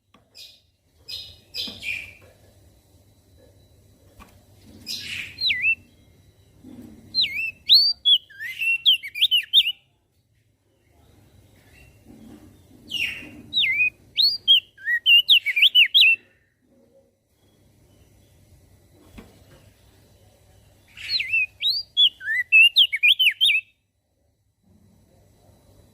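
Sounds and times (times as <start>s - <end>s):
bird whistling song: 4.8s - 6.0s, 7.1s - 9.8s, 12.9s - 16.3s, 20.9s - 23.8s.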